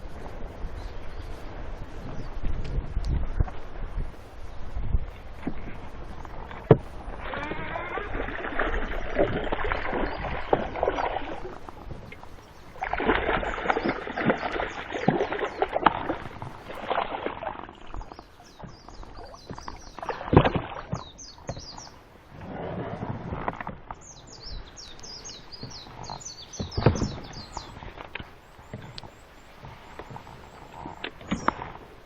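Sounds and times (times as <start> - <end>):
paddle splashing in water: 0.0 - 32.0
small birds chirping: 17.8 - 22.0, 24.0 - 31.6.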